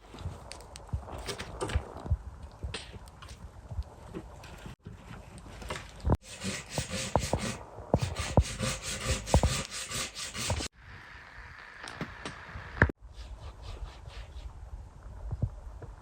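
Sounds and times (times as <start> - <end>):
hand saw rasping through wood: 6.2 - 10.7.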